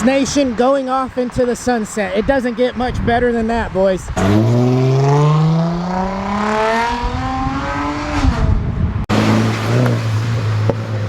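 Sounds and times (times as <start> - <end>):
car engine accelerating: 4.2 - 11.0.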